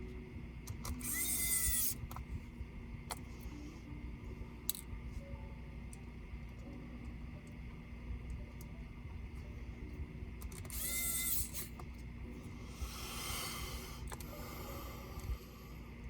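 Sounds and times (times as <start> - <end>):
sharp clicks of parts: 0.6 - 2.3, 4.7 - 4.9, 10.4 - 12.0, 14.0 - 14.4.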